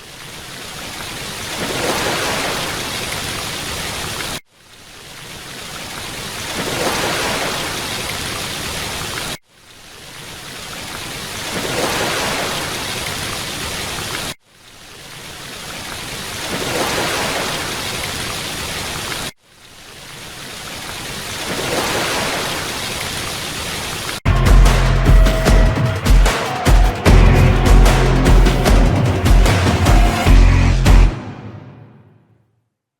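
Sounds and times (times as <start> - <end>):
rushing water: 0.0 - 30.4
music: 24.3 - 32.3.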